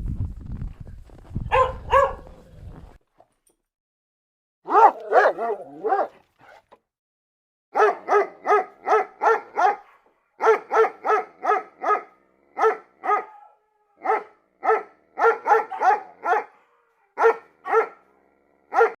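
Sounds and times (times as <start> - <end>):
dog barking: 1.5 - 2.4, 4.6 - 6.6, 7.7 - 19.0.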